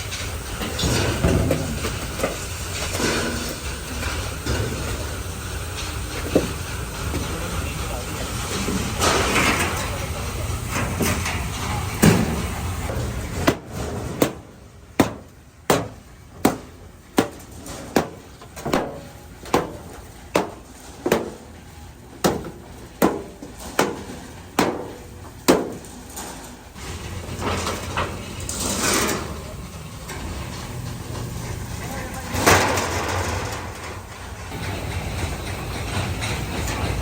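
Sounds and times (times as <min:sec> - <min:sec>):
hammer striking metal: 0:13.4 - 0:21.5, 0:22.2 - 0:25.9.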